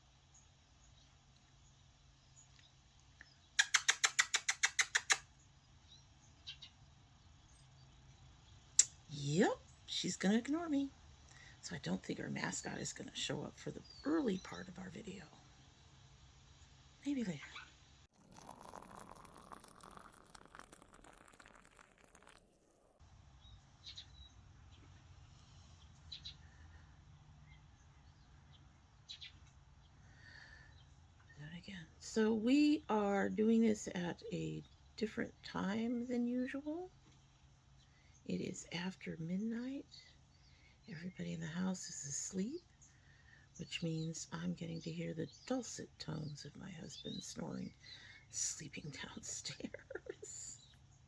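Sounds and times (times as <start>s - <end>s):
faint clicks: 2.5s - 5.3s
person making squeaky mouth noises: 3.6s - 5.2s.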